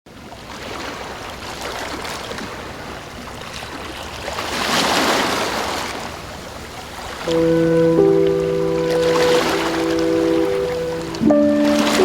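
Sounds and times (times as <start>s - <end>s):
water rushing and splashing: 0.3s - 12.0s.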